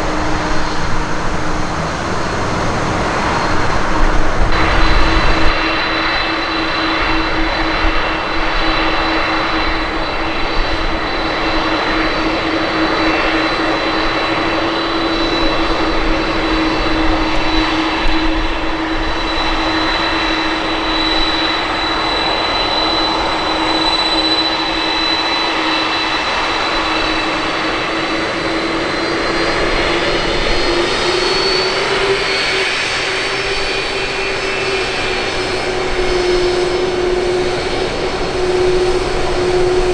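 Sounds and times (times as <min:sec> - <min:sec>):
rushing noise: 0:00.0 - 0:06.5
jet engines whining: 0:00.0 - 0:39.9.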